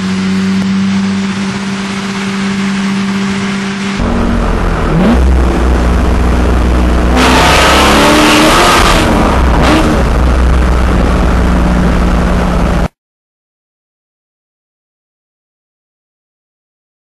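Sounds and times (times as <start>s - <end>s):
car engine revving: 0.0s - 12.9s.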